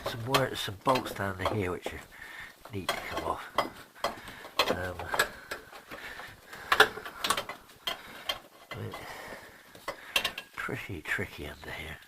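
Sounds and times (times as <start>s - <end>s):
metal tools clinking on bolts: 0.0s - 2.0s, 2.7s - 6.0s, 9.9s - 10.6s.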